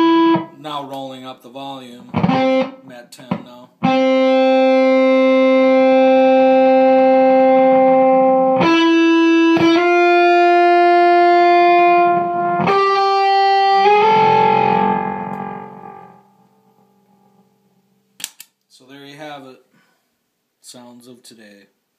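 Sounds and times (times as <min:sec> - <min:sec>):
fuzzed electric guitar notes: 0:00.0 - 0:00.6, 0:02.1 - 0:02.8, 0:03.8 - 0:17.8.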